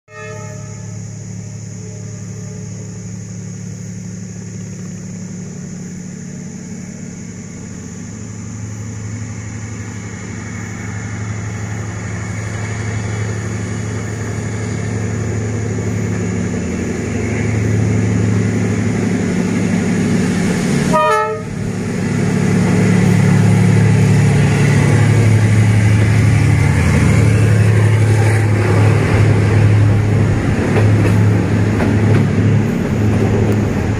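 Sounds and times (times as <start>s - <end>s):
train horn note: 0.1s - 1.1s, 20.8s - 21.6s
locomotive engine drone: 0.1s - 33.9s.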